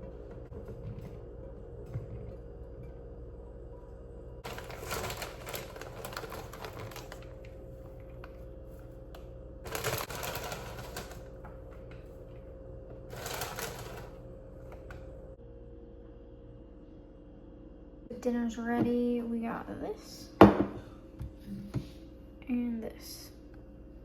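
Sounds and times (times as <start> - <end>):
kitchen clattering and crackling: 4.4 - 8.3, 9.7 - 11.5, 13.1 - 14.2.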